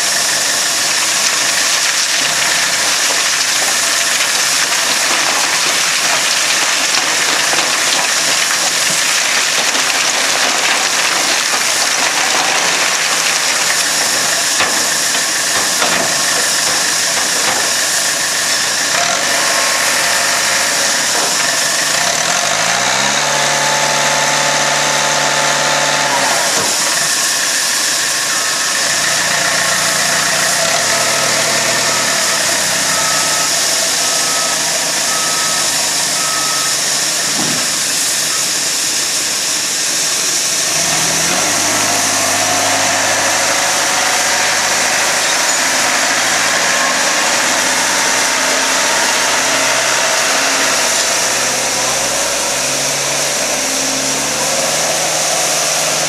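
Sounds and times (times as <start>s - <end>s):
train running: 0.0s - 56.0s.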